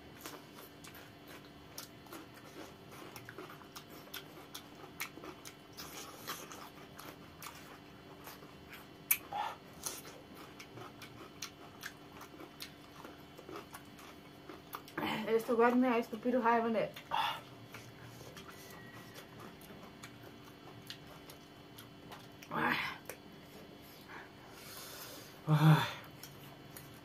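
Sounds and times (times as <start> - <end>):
crunching and chewing: 0.0 - 16.3, 16.9 - 27.0
wet mouth clicks: 9.1 - 9.3.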